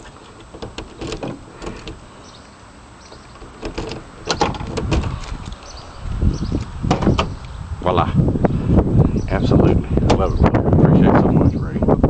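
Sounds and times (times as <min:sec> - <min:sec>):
van door latch clicking and clunking: 0:00.0 - 0:02.1, 0:03.0 - 0:05.7, 0:06.6 - 0:07.4.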